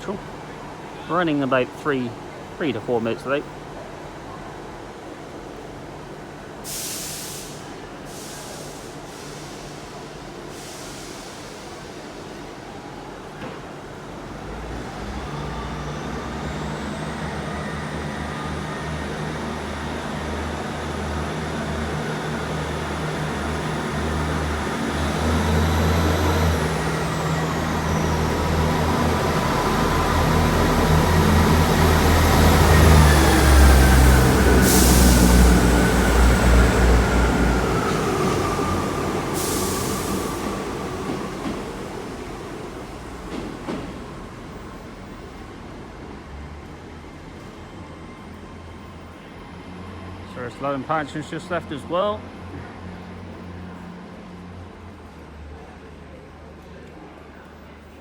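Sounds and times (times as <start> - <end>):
diesel train engines running: 0.0 - 58.0
air hissing: 6.7 - 12.2, 34.4 - 36.1, 37.6 - 44.0.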